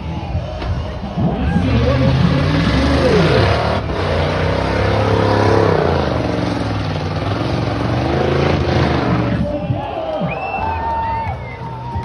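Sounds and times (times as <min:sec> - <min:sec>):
truck engine revving hard: 0:01.3 - 0:09.6.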